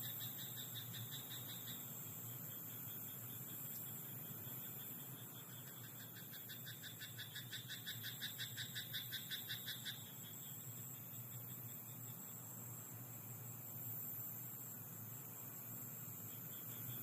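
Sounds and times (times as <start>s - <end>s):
insects buzzing: 0.0s - 17.0s
frog croaking: 4.6s - 10.2s.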